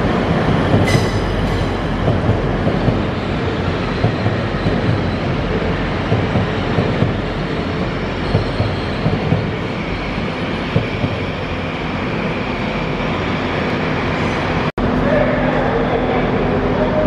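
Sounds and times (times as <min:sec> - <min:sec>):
train wheels knocking over rail joints: 0:00.0 - 0:11.6
train running noise: 0:00.0 - 0:17.0.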